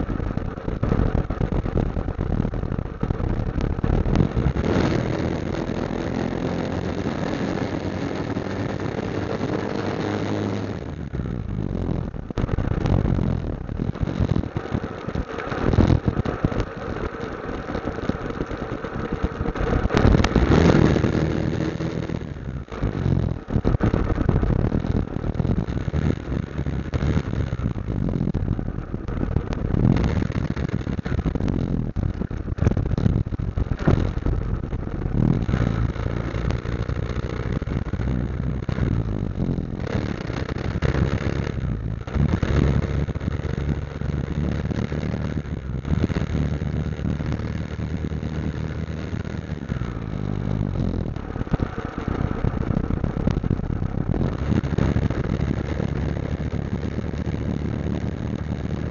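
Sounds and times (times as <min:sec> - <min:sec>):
motorcycle engine running: 0:00.0 - 0:58.9
rushing noise: 0:00.0 - 0:58.9.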